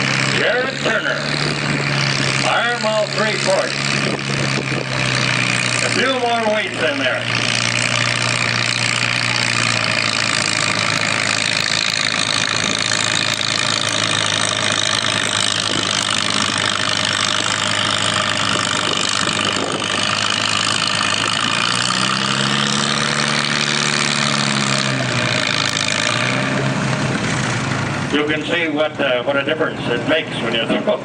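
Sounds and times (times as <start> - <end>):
tractor engine under load: 0.0 - 31.0.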